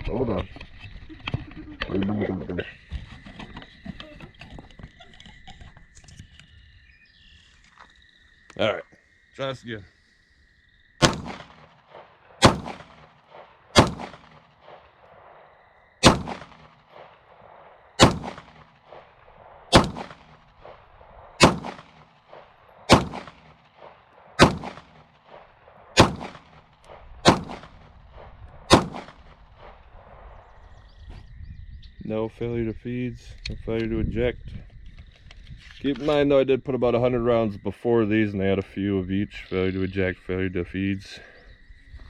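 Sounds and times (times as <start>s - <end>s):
pistol shots echoing: 11.0s - 29.8s.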